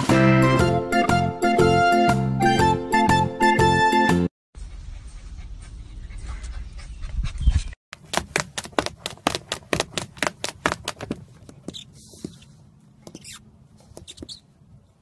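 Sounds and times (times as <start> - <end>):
puppy panting fast: 4.6 - 7.8.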